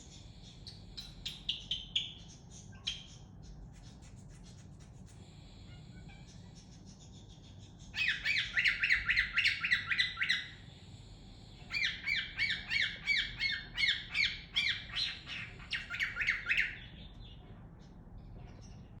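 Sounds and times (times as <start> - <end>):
cockatiel chirping: 0.6 - 4.6, 5.7 - 10.6, 11.7 - 17.0.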